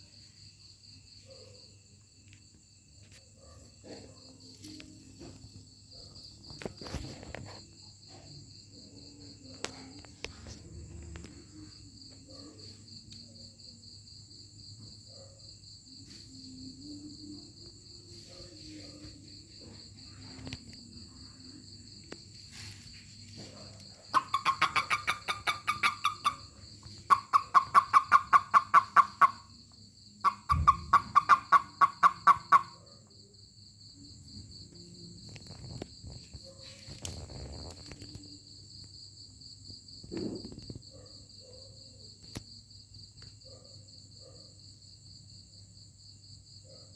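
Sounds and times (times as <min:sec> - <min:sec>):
crickets trilling: 0:00.0 - 0:46.9
toad pulsed chirps: 0:24.1 - 0:26.4, 0:27.0 - 0:29.5, 0:30.2 - 0:32.7.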